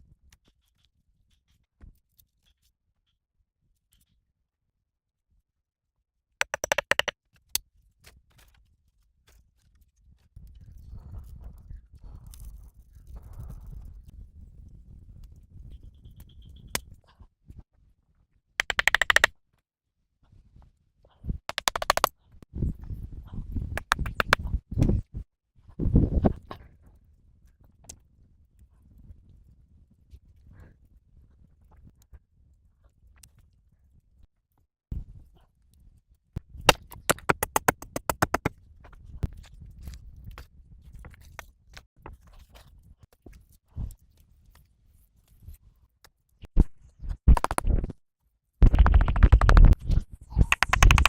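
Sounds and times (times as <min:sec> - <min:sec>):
rapid clicking knocks: 0:06.4 - 0:07.1, 0:18.6 - 0:19.3, 0:21.5 - 0:22.1, 0:50.5 - 0:51.0
sharp click: 0:06.4 - 0:07.1, 0:18.6 - 0:19.3, 0:21.5 - 0:22.1, 0:23.8 - 0:24.4, 0:50.5 - 0:51.0.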